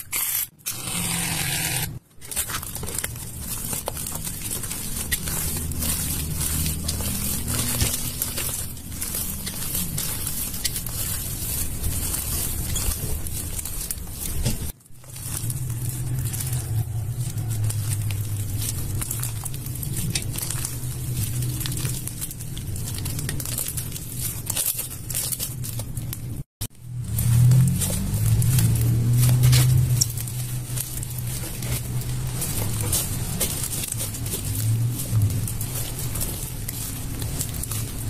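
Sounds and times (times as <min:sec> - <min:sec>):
slime crackling and popping: 0:01.9 - 0:38.0.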